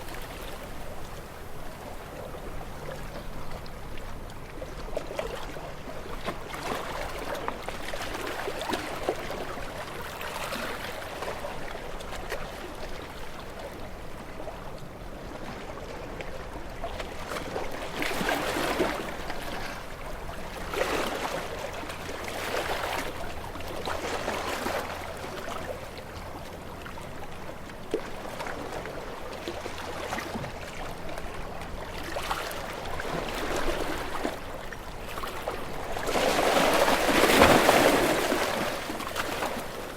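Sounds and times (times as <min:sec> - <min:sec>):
waves splashing against rocks: 0:30.1 - 0:39.9.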